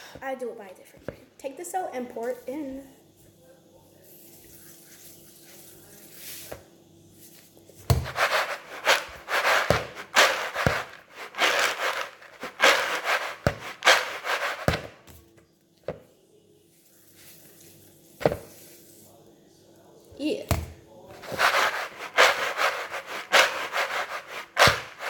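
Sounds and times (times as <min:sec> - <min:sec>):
popcorn bag shaken rattling: 0:08.0 - 0:14.8, 0:21.2 - 0:25.0.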